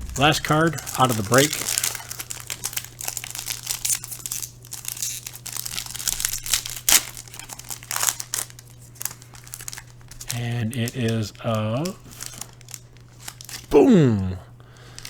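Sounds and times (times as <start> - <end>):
steady low hum: 0.0 - 13.1
plastic packaging crinkling: 0.0 - 13.7, 14.8 - 15.0.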